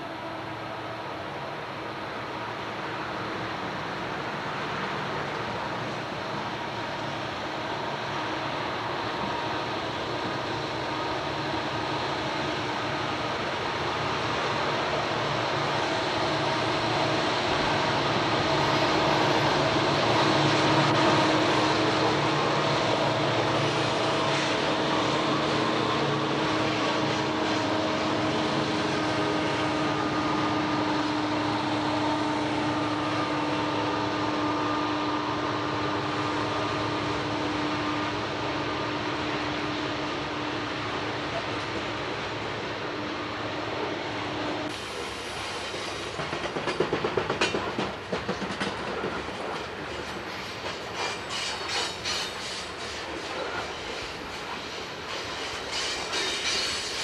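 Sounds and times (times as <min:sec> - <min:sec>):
diesel locomotives droning: 0:00.0 - 0:57.0.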